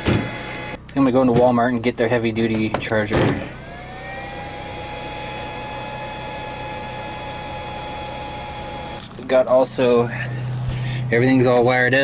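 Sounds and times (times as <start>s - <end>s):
motor whine: 0.0s - 0.8s, 3.4s - 9.3s.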